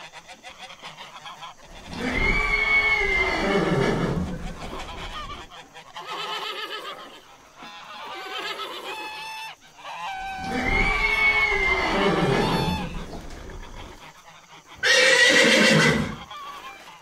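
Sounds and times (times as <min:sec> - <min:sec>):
geese honking: 0:07.6 - 0:15.5.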